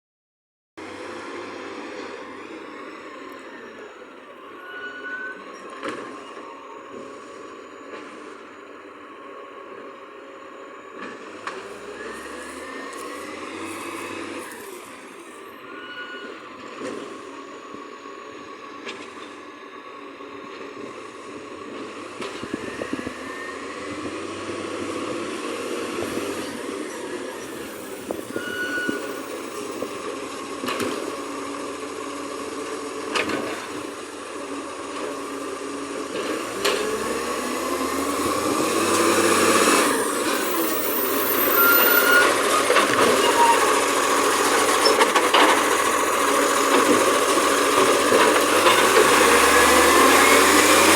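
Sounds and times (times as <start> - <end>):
truck diesel engine running: 29.4 - 50.9.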